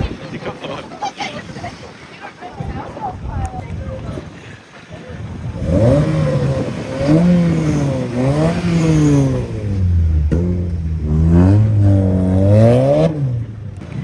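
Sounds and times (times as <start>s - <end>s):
car engine revving hard: 5.4s - 13.8s.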